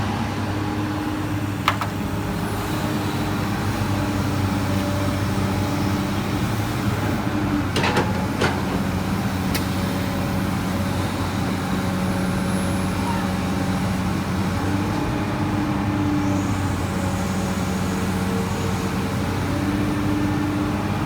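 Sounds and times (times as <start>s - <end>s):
excavator diesel engine running: 0.0s - 21.0s
metallic clanks: 7.8s - 8.9s.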